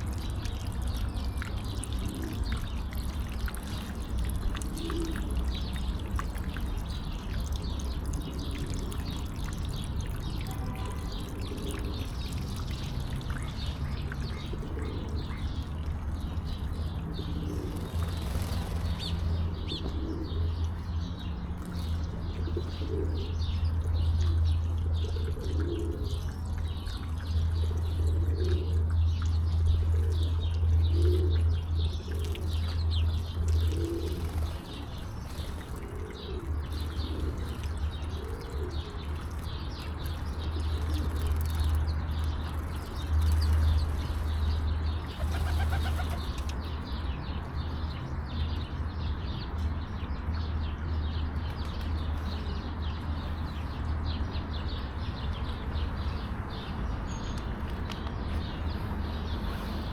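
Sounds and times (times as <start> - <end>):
small birds chirping: 0.0 - 59.9
pigeons cooing: 3.7 - 7.1, 9.8 - 12.3, 14.3 - 20.8, 21.8 - 41.6, 43.0 - 46.8.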